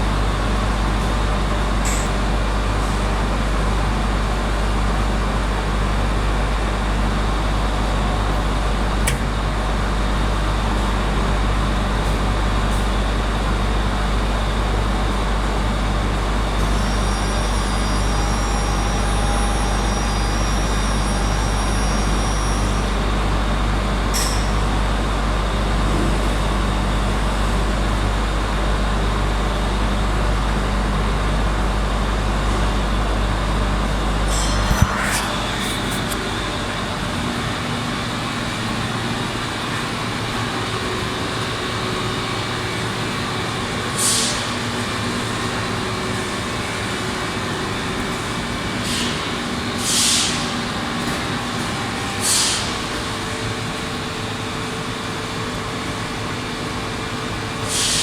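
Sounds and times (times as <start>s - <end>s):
industrial machinery drone: 0.0s - 58.0s
thin high whine: 33.8s - 38.1s.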